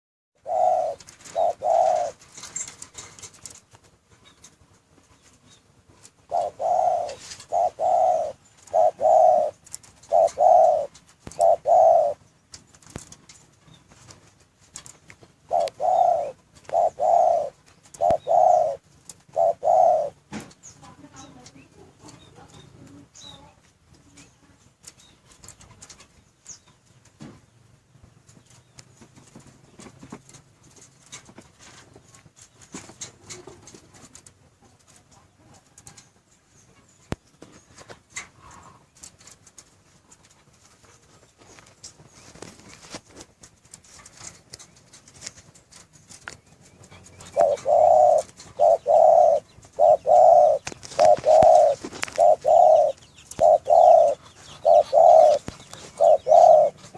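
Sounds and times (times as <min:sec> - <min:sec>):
dove cooing: 0:00.4 - 0:03.6, 0:06.2 - 0:12.4, 0:14.8 - 0:24.3, 0:33.0 - 0:36.1, 0:46.8 - 0:56.9.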